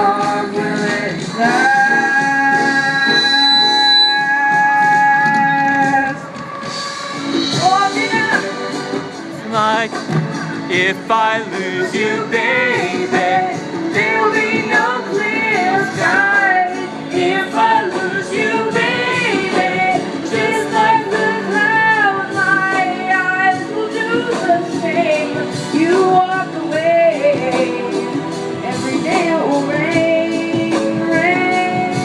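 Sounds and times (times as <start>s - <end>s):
instrumental accompaniment with beat: 0.0s - 32.0s
choir singing: 10.7s - 21.8s.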